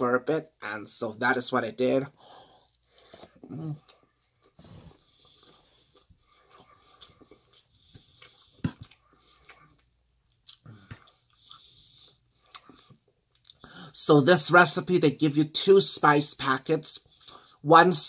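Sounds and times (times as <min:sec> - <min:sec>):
person chewing: 0:02.6 - 0:13.9.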